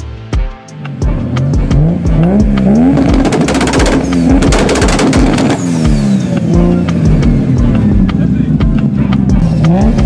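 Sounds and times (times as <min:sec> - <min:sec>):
car engine revving: 0:01.2 - 0:10.0
exhaust crackles and pops: 0:03.0 - 0:05.7.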